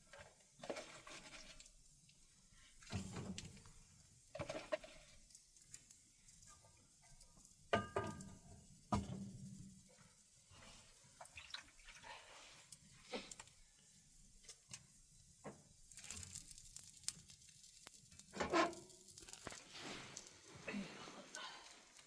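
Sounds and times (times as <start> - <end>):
rustling: 15.9 - 21.3.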